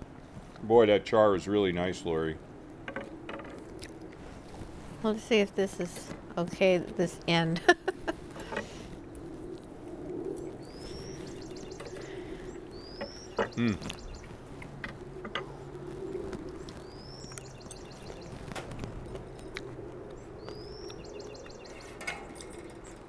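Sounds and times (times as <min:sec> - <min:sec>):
low background hum: 0:00.0 - 0:23.0
songbird whistle and trill: 0:10.6 - 0:14.3, 0:16.6 - 0:18.4, 0:20.4 - 0:22.0.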